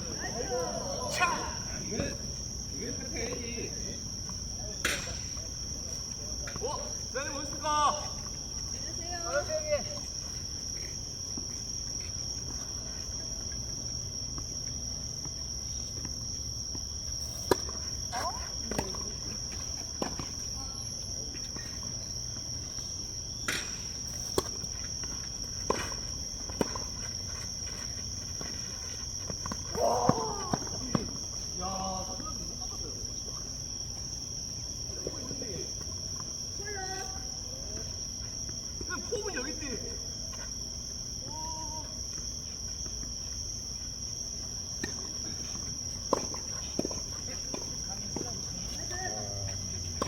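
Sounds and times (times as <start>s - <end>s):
high-pitched insect chorus: 0.0s - 50.0s
tennis ball hitting rackets: 17.4s - 20.4s, 23.2s - 27.6s.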